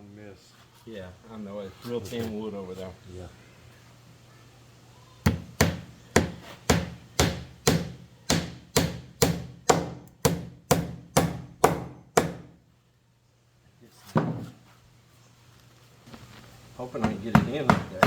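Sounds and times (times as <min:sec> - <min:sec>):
hammer driving nail into wood: 0:05.3 - 0:12.5.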